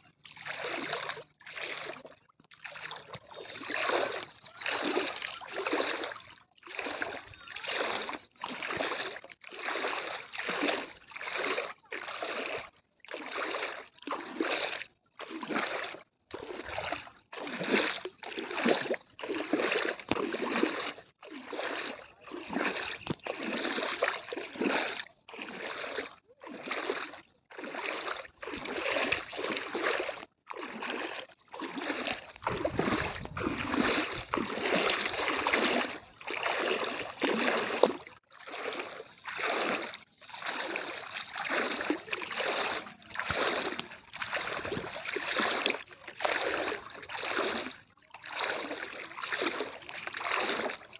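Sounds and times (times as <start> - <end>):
floodwater splashing: 0.0 - 50.9.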